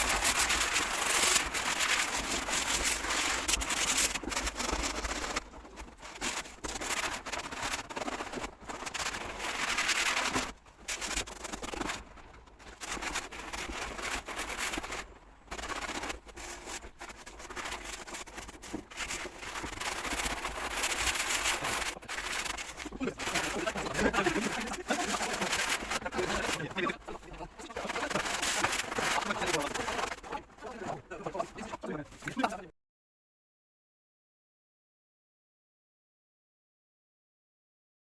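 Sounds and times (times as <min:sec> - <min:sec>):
scraping strokes on a surface: 0:12.6 - 0:32.6.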